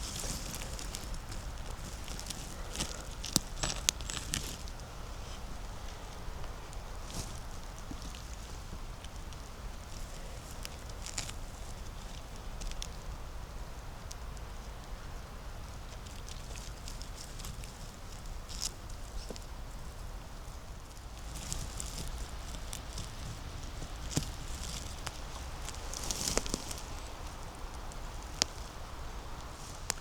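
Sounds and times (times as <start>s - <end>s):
footsteps crackling dry leaves: 0.0s - 13.1s, 15.9s - 30.0s
low steady rumble: 0.0s - 30.0s.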